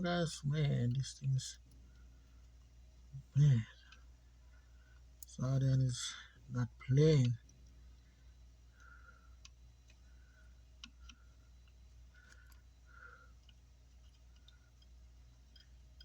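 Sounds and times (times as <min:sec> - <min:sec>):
faint ticks and clicks: 0:03.7 - 0:06.2, 0:06.8 - 0:16.0.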